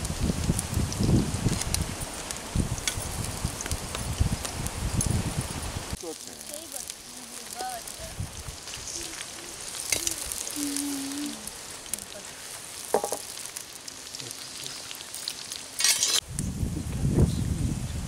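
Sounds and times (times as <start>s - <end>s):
onions sizzling in hot oil: 0.0s - 18.0s
spoon scraping pan: 15.8s - 16.2s.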